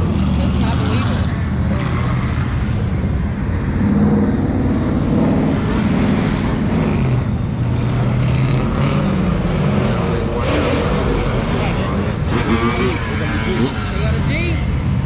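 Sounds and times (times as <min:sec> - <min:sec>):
car engine revving: 0:03.7 - 0:15.0.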